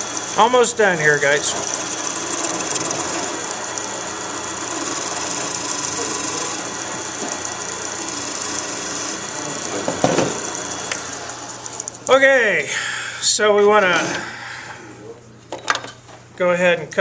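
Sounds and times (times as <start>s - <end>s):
wood lathe running: 0.0s - 12.4s.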